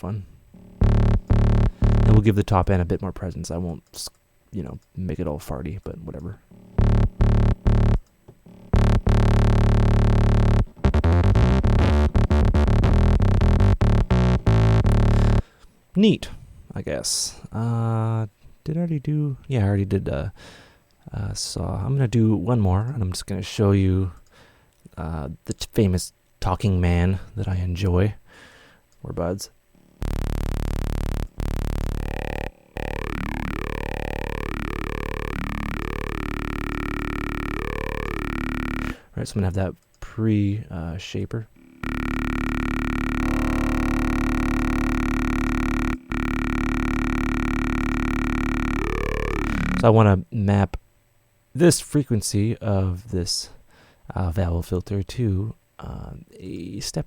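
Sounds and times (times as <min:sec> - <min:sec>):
distorted synth bass: 0:00.0 - 0:02.8, 0:06.5 - 0:15.5, 0:29.8 - 0:39.0, 0:41.5 - 0:49.9.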